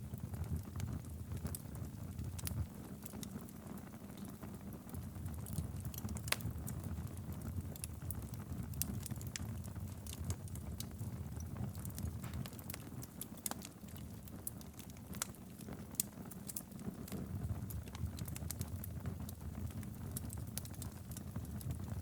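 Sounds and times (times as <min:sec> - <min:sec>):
fire crackling and popping: 0:00.0 - 0:22.0
low rumble of flames: 0:00.0 - 0:22.0.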